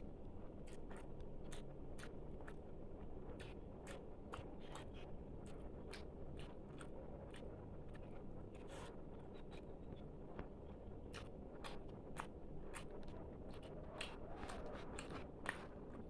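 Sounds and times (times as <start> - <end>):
person chewing with wet mouth clicks: 0.7 - 2.6, 3.4 - 8.0, 11.1 - 15.7.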